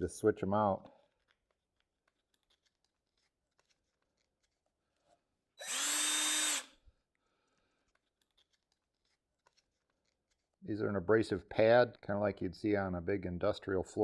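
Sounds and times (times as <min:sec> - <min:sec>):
die grinder whirring: 0:05.6 - 0:06.8.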